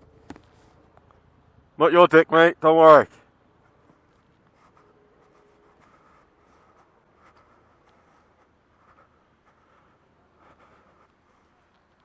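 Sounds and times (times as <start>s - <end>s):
faint scratchy rustling: 3.6s - 12.0s
soft ticks: 11.1s - 12.0s.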